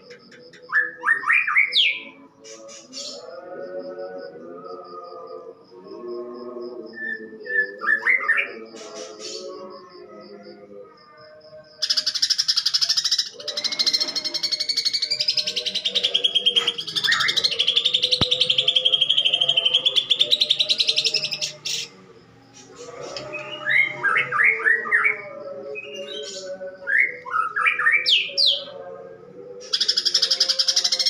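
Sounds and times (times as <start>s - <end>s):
bird singing rattling trill: 11.8s - 22.0s, 22.6s - 28.8s, 29.6s - 31.0s
bird rising chirps: 11.9s - 22.0s.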